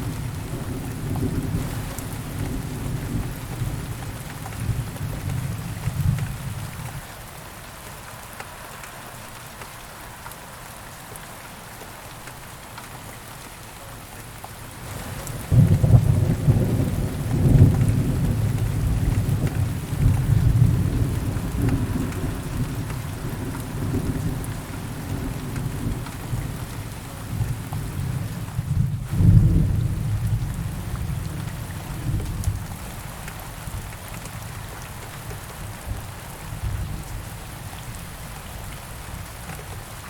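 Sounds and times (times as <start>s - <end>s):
steady rain falling: 0.0s - 40.0s
thunderclap and rumble: 14.9s - 32.8s.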